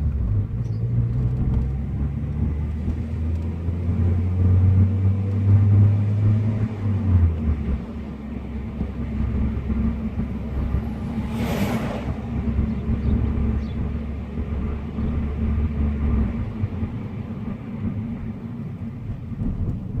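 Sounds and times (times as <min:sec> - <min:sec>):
car engine droning: 0:00.0 - 0:20.0
brief rushing noise: 0:10.0 - 0:13.6.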